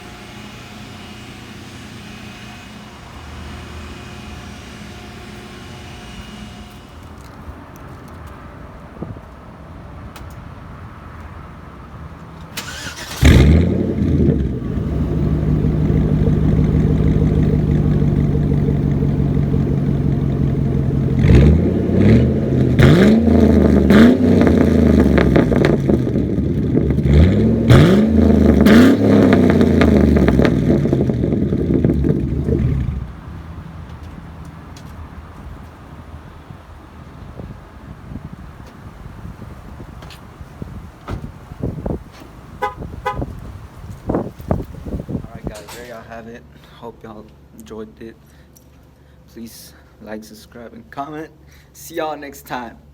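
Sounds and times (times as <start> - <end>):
car engine idling: 11.5 - 37.9, 40.7 - 45.6
engine cranking and starting: 12.4 - 33.3
engine revving in quick blips: 12.5 - 33.6.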